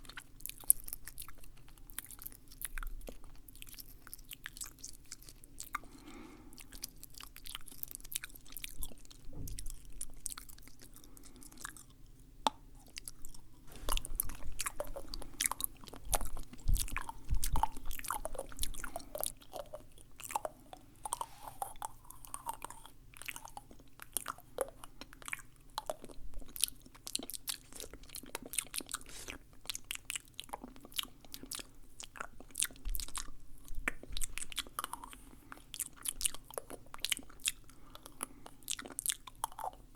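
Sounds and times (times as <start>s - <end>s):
wet mouth clicks and smacks: 12.5s - 20.5s.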